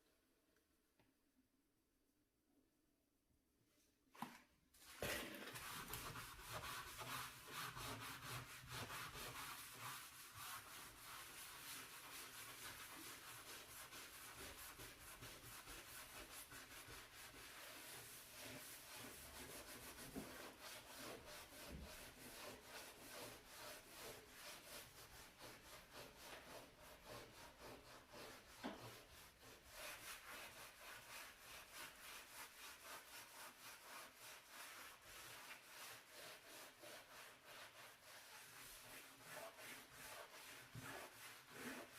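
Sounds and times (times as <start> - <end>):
scrubbing brush on stove: 4.8 - 41.9.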